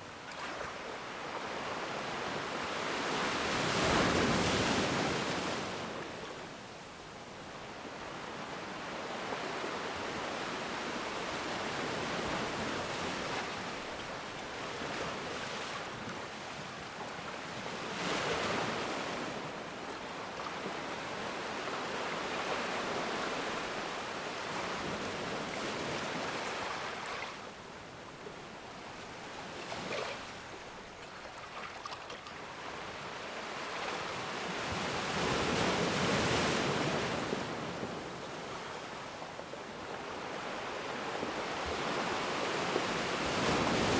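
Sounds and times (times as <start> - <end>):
ocean waves breaking on shore: 0.0 - 43.9.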